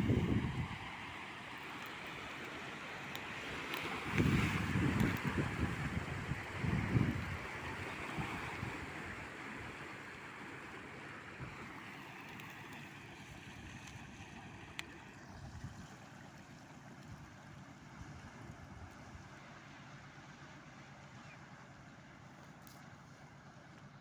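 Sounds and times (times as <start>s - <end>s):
wind buffeting microphone: 0.0s - 1.0s, 4.0s - 9.8s
wake waves washing against riverbank: 0.0s - 23.0s.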